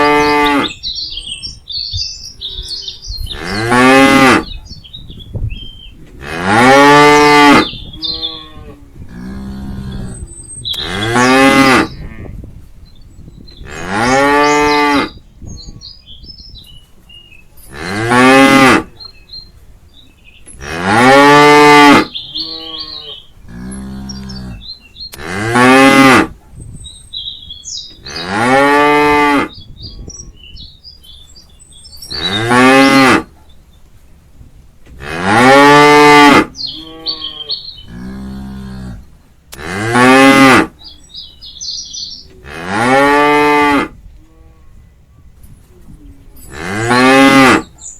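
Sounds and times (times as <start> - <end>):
cow mooing loudly: 0.0 - 0.8, 3.3 - 4.5, 6.2 - 12.3, 13.7 - 15.2, 17.7 - 18.9, 20.6 - 26.3, 28.0 - 29.6, 32.1 - 33.3, 35.0 - 40.7, 42.4 - 44.6, 46.5 - 47.7
faint distant moos: 42.3 - 47.8.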